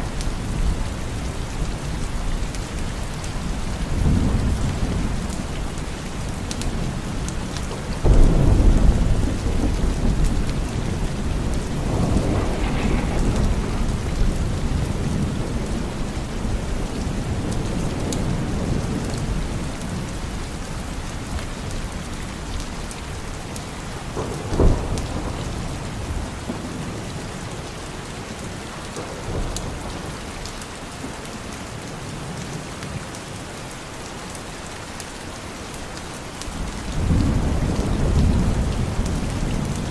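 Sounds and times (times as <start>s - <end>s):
steady rain: 0.0s - 39.9s
rolling thunder: 7.9s - 20.4s, 23.9s - 30.4s, 36.5s - 39.9s
sharp thunder crack: 8.1s - 16.4s.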